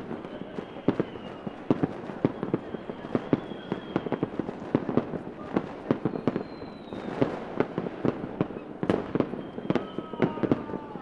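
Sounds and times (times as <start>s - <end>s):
fireworks cracks and pops: 0.0s - 11.0s
high whistle gliding down: 0.2s - 4.4s, 6.0s - 7.2s, 9.2s - 11.0s.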